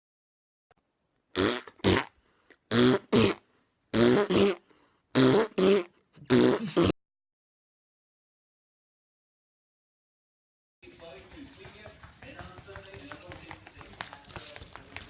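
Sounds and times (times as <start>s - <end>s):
dog giving gruff vocal sounds: 5.4s - 6.9s.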